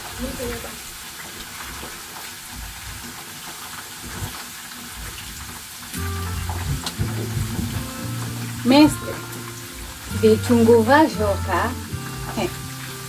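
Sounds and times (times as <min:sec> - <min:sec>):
potatoes sizzling in oil: 0:00.0 - 0:13.0
background music: 0:06.0 - 0:13.0.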